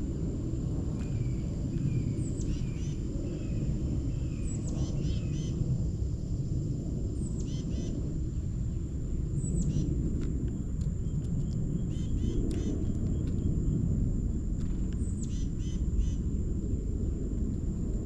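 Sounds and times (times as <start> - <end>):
steady low rumble: 0.0 - 18.0
songbird singing: 0.6 - 5.6, 7.2 - 13.9, 14.8 - 17.2.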